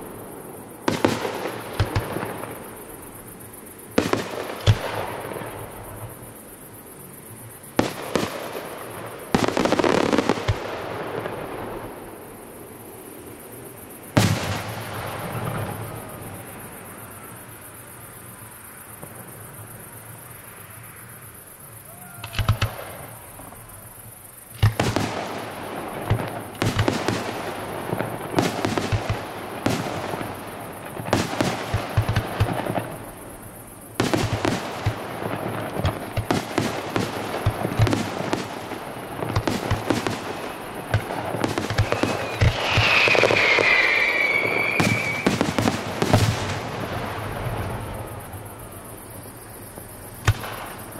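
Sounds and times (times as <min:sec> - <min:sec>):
fireworks bangs and crackling: 0:00.0 - 0:03.3, 0:03.9 - 0:06.4, 0:07.7 - 0:12.4, 0:14.1 - 0:16.8, 0:21.9 - 0:50.9
firework whistle gliding down: 0:41.6 - 0:45.8.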